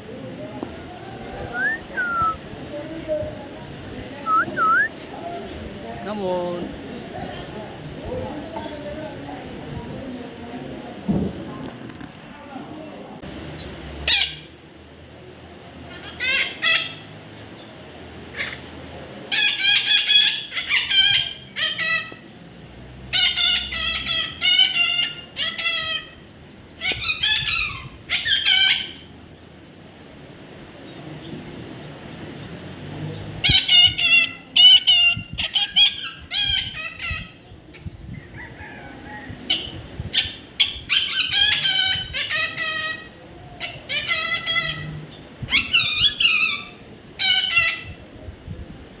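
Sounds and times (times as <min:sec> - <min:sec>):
parrot squawking: 0:14.1 - 0:14.5, 0:15.9 - 0:17.1, 0:19.3 - 0:22.2, 0:23.1 - 0:29.1, 0:33.4 - 0:37.4, 0:39.5 - 0:48.0.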